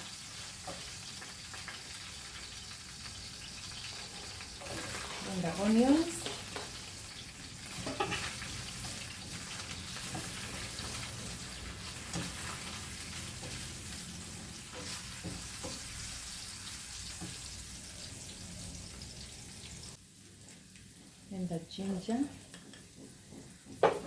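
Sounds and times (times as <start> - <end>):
garlic and onions sizzling in a pan: 0.0 - 24.0
utensil scraping a pan: 3.8 - 6.8, 7.6 - 17.8.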